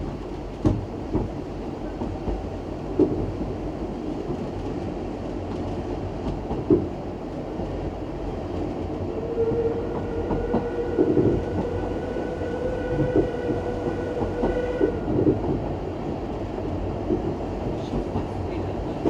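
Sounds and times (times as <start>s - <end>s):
steam train rumbling: 0.0s - 19.0s.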